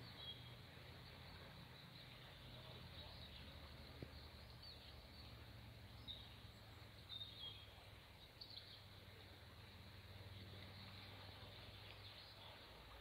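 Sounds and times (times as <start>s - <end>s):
bird chirps: 0.0s - 8.9s
low steady background noise: 0.0s - 13.0s.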